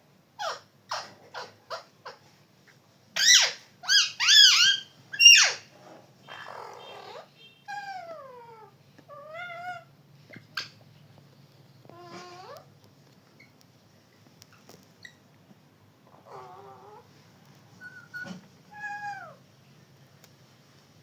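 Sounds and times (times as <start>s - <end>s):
parrot squawking: 0.4s - 2.3s, 3.2s - 10.8s
parrot whistling: 3.2s - 5.6s.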